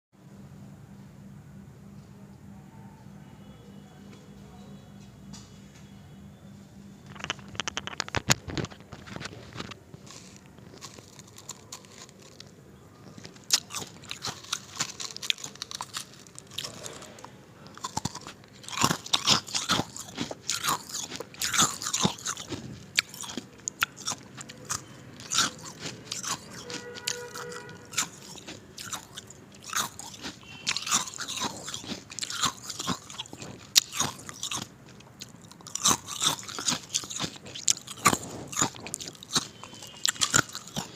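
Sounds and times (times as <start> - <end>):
ice crunching: 7.2 - 17.1.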